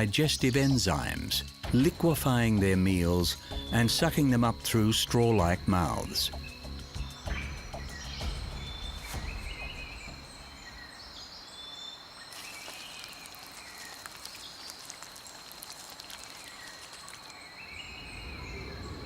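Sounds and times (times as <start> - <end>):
bird chirps: 5.9 - 19.0.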